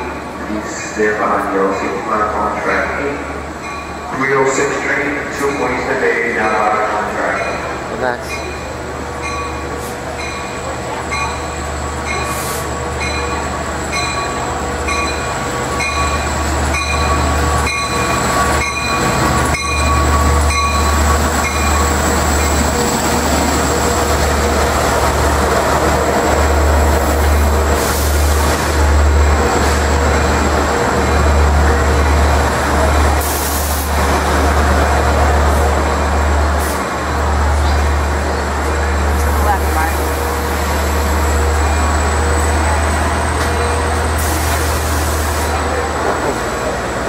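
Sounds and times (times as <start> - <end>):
locomotive engine rumble: 0.0 - 47.0
locomotive bell ringing: 3.6 - 24.8.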